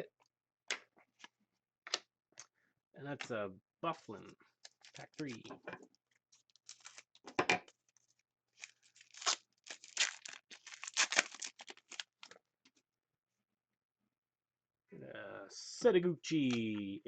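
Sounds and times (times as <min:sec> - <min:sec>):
card pack wrapper tearing: 0:04.7 - 0:05.3, 0:06.4 - 0:07.2, 0:08.6 - 0:12.3.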